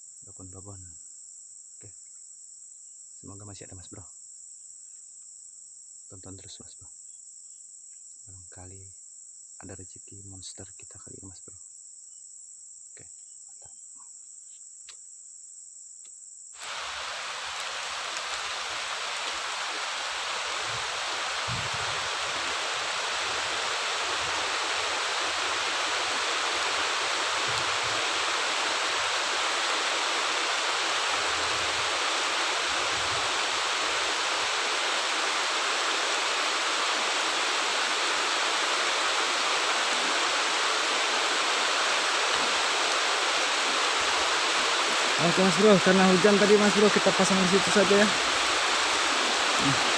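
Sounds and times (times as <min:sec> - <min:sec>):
heavy rain falling: 0:16.6 - 0:49.9.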